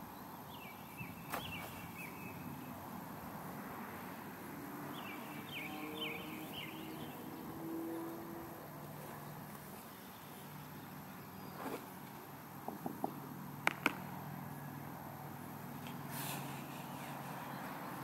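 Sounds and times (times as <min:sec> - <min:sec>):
small birds chirping: 0:00.0 - 0:02.8, 0:04.8 - 0:08.3.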